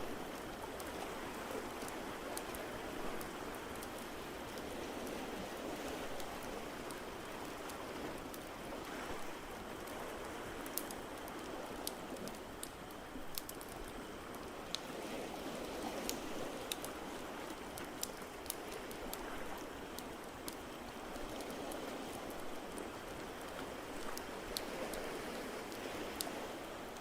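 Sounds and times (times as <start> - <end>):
wood fire crackling and popping: 10.6 - 14.8.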